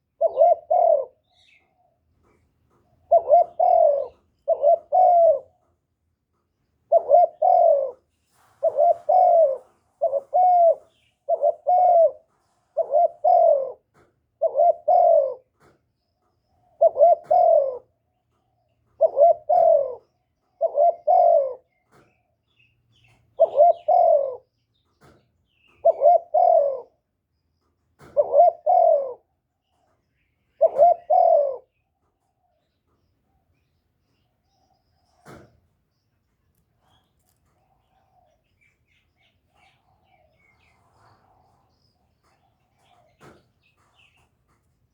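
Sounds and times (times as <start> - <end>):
dove cooing: 0.0 - 5.8, 6.8 - 15.7, 16.6 - 18.1, 18.8 - 22.0, 23.0 - 27.1, 28.0 - 29.4, 30.5 - 31.8, 36.8 - 44.2.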